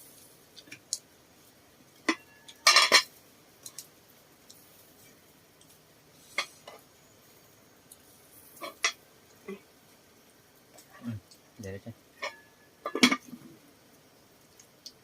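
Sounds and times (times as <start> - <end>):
utensils clinking against dishes: 2.1 - 3.1.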